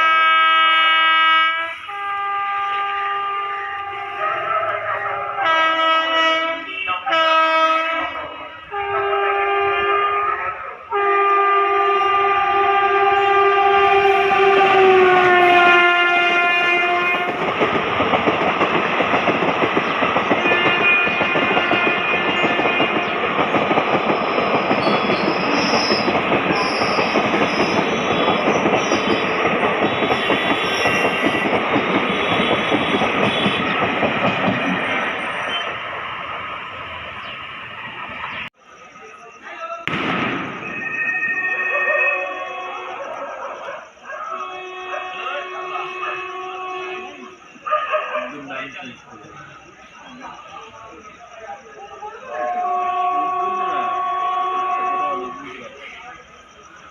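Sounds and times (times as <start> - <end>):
locomotive horn blasts: 0.0 - 17.6, 20.3 - 23.3, 27.8 - 35.7, 44.3 - 47.4, 52.5 - 55.4
train coaches rattling past: 0.0 - 56.9.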